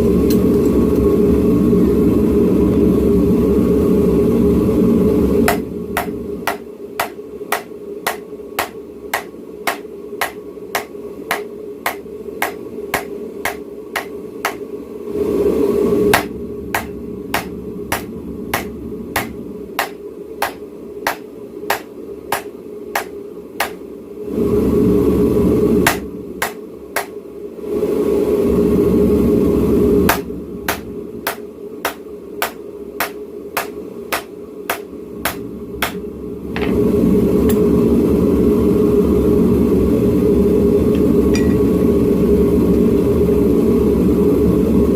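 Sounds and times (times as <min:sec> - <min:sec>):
hammer striking steel on anvil: 0:05.5 - 0:14.6, 0:16.1 - 0:23.8, 0:25.9 - 0:27.1, 0:30.1 - 0:36.0, 0:41.3 - 0:41.8
forge roaring: 0:24.2 - 0:26.2.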